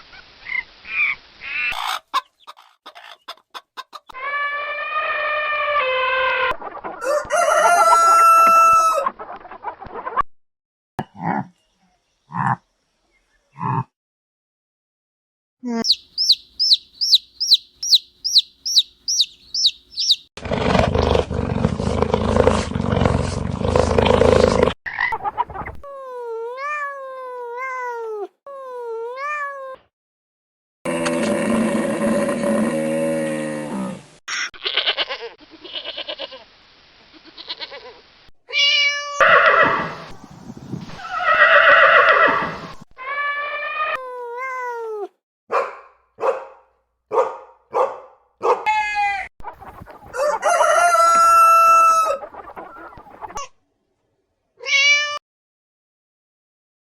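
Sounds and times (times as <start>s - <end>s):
animal calls: 15.8s - 20.3s
quick high chirps: 15.8s - 20.3s
rising-and-falling calls: 15.8s - 20.3s, 41.0s - 42.8s, 50.1s - 53.3s.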